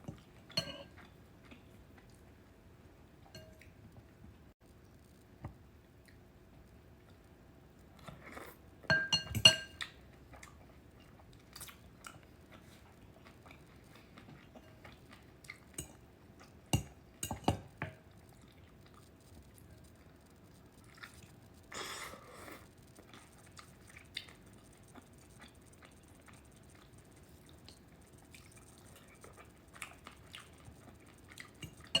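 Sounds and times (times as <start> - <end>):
chewing: 0.0 - 2.4, 9.8 - 17.0, 17.9 - 32.0
spoon clinking against bowl: 0.5 - 0.9, 8.9 - 9.8, 16.8 - 18.0, 31.6 - 32.0.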